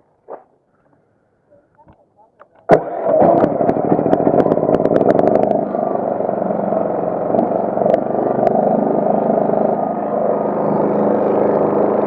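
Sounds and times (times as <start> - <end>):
generator engine running: 2.7 - 12.0.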